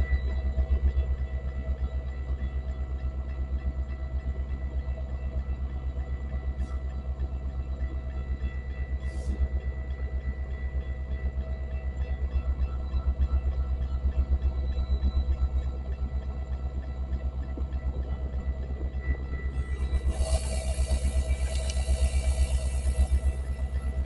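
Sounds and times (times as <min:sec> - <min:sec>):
steady whine: 0:00.0 - 0:24.0
diesel locomotive rumbling: 0:06.0 - 0:24.0
air hisses: 0:20.0 - 0:23.3.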